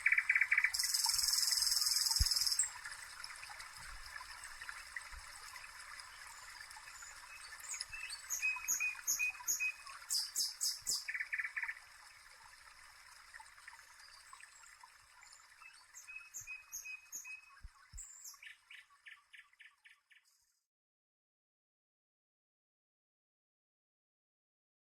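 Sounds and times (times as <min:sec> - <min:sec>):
soft steady hiss: 0:00.0 - 0:18.6
songbirds chirping: 0:05.5 - 0:12.2.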